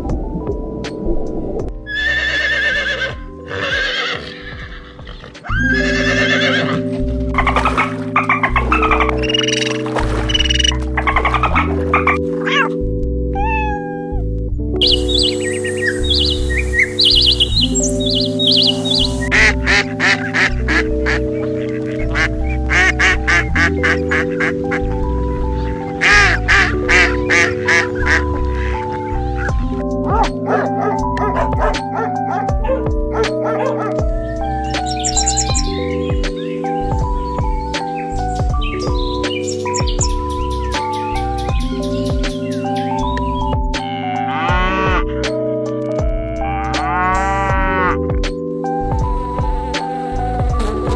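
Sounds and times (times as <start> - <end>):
background music: 0.0 - 50.9
horse whinnying: 1.9 - 6.8
rapid clicking calls: 7.4 - 12.2
ducks quacking: 14.8 - 21.4.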